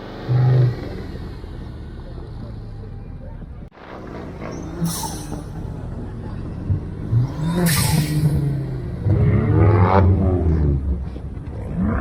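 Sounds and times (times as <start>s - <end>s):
car engine revving: 0.0s - 12.0s
rush of air: 3.8s - 5.9s.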